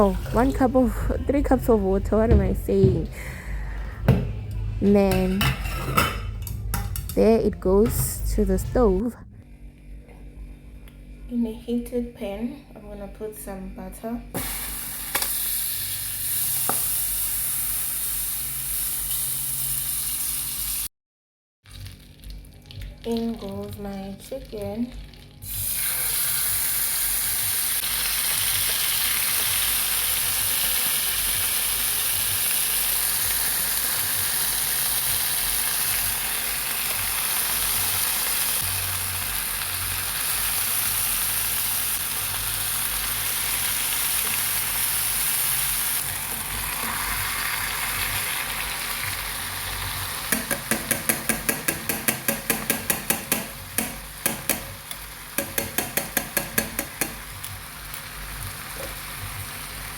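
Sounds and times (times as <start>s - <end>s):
chicken sizzling in a pan: 14.4s - 20.9s, 24.4s - 52.7s, 56.4s - 59.9s.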